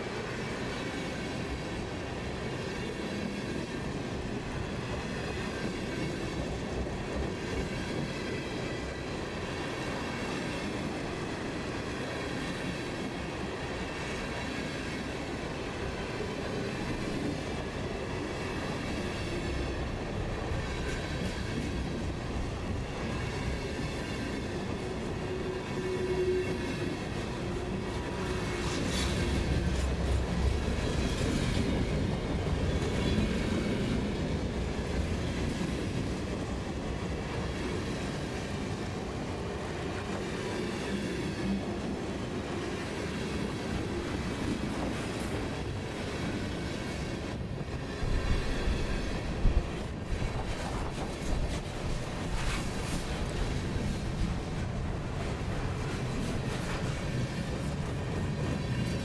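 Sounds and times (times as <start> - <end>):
freight train wheels clacking: 15.9 - 59.0.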